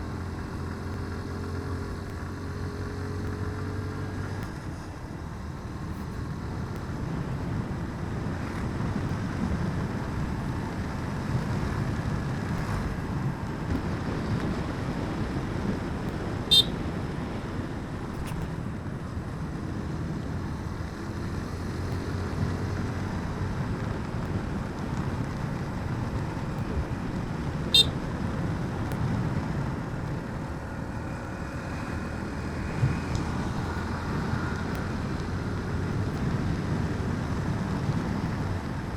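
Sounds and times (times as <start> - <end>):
motorbike engine rumble: 0.0 - 38.9
high horn beeps: 16.5 - 16.8, 27.7 - 28.0.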